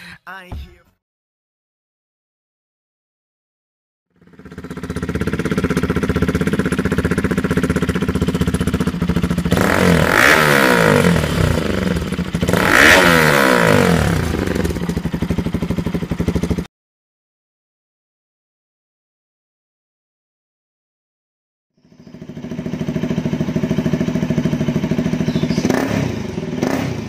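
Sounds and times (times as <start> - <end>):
motorcycle engine idling and revving: 4.1 - 16.7, 21.8 - 27.0.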